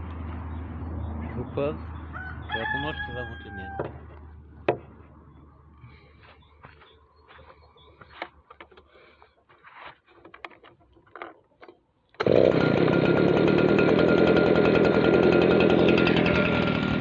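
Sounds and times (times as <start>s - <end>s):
leaf blower engine running: 12.2s - 17.0s.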